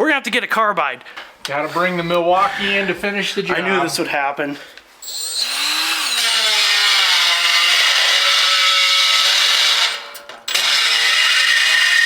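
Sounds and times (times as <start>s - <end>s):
drill cutting into steel: 5.0s - 12.0s
power drill whining: 5.0s - 12.0s.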